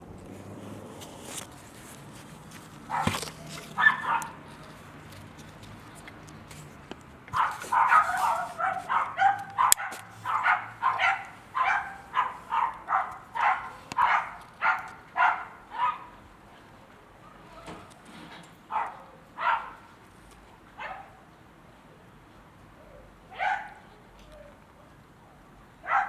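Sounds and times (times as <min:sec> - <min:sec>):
dog barking: 0:02.9 - 0:04.4, 0:07.4 - 0:16.2, 0:18.7 - 0:19.9, 0:20.8 - 0:21.2, 0:23.3 - 0:24.0.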